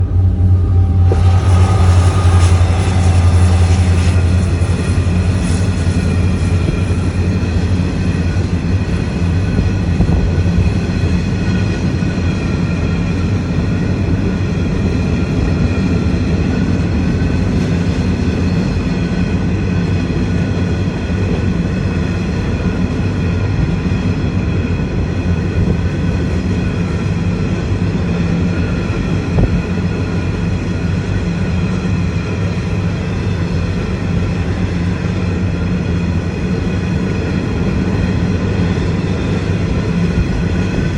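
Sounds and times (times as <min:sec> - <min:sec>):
faint whining tones: 0:00.0 - 0:07.2
train rumbling past: 0:00.0 - 0:40.9.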